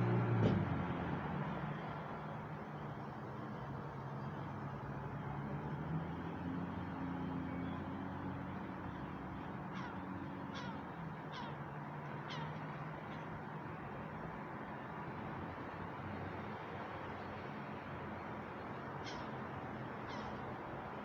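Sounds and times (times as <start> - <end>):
city ambience hum: 0.0 - 21.0
bird calling: 9.7 - 13.3, 20.0 - 20.5.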